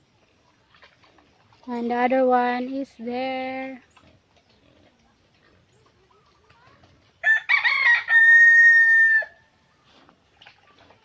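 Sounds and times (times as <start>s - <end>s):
rooster crowing: 7.2s - 9.4s.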